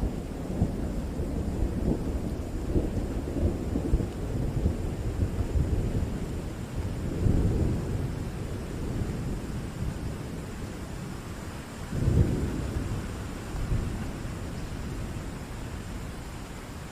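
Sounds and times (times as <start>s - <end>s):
thunder rumbling: 0.0s - 16.3s
steady rain: 0.0s - 16.9s.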